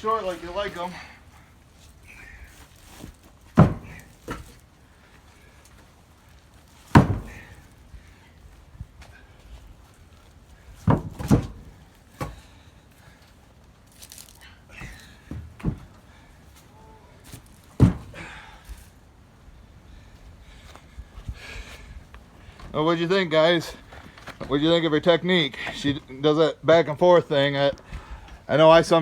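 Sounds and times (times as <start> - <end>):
firewood thunking down: 2.1 - 4.7, 6.7 - 7.8, 10.6 - 12.6, 14.0 - 16.2, 17.2 - 18.6.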